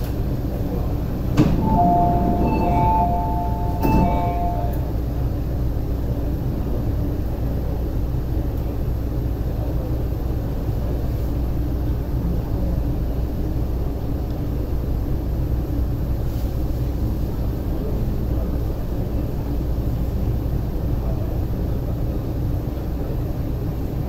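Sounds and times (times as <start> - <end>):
train interior hum: 0.0 - 24.0
two-tone electronic chime: 1.6 - 4.8.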